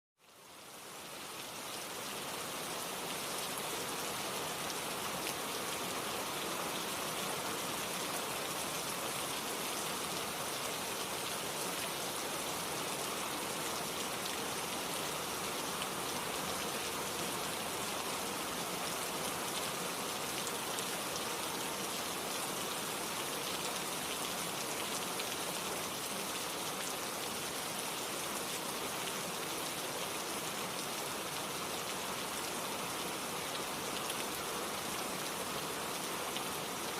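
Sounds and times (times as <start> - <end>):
steady rain falling: 0.2 - 36.9.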